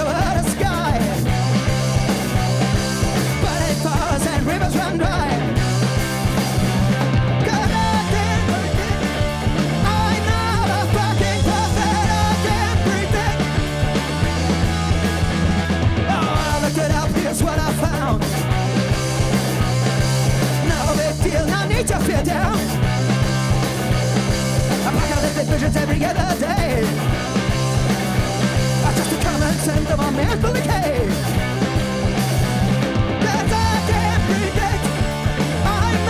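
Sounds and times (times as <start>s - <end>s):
person singing: 0.0s - 1.3s, 3.3s - 5.5s, 7.4s - 13.7s, 14.3s - 18.4s, 20.6s - 22.8s, 24.8s - 27.0s, 28.8s - 31.3s, 33.2s - 36.0s
punk rock band playing loud: 0.0s - 36.0s.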